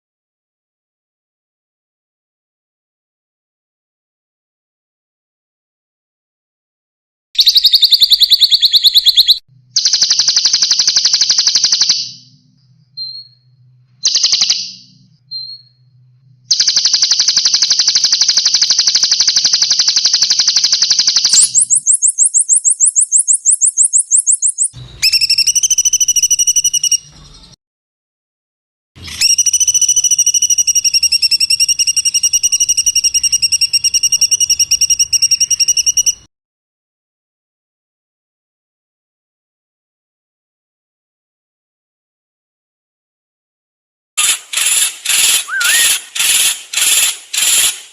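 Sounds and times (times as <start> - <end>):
songbird rattling trills: 7.4 - 12.3, 16.5 - 27.1, 44.2 - 47.9
bird whistled notes: 7.4 - 12.4, 13.0 - 15.8, 16.5 - 27.5, 29.1 - 36.3, 44.2 - 47.8.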